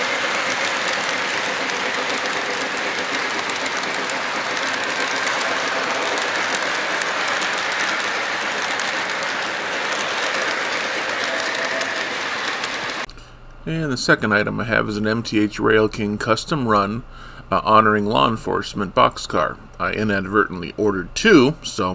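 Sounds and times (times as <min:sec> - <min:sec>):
model train running on track: 0:00.0 - 0:13.1
wheels clicking over rail joints: 0:00.0 - 0:13.1.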